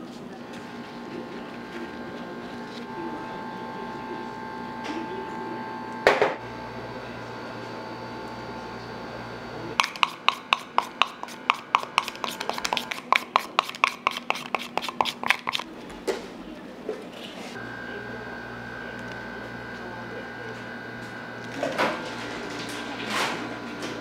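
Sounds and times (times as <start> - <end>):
utensil tapping against bowl: 9.8 - 15.6.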